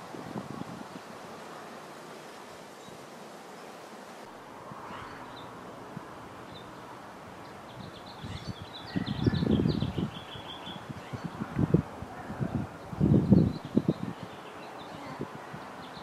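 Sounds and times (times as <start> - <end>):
bird chirping: 7.4 - 11.6.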